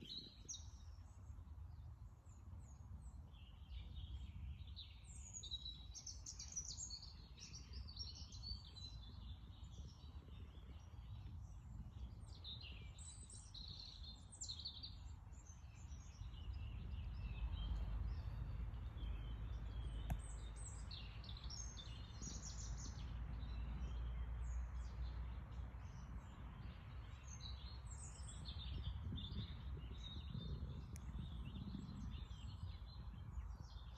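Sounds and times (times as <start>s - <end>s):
songbirds chirping and singing: 1.8s - 33.9s
low steady rumble: 15.0s - 28.0s.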